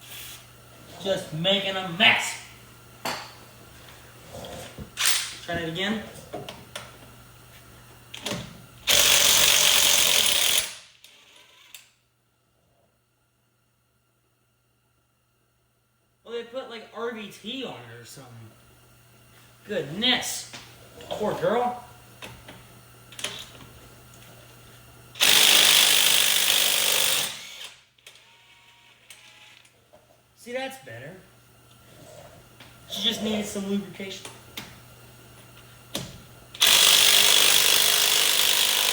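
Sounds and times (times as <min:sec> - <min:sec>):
impact wrench hammering: 0:36.6 - 0:38.9.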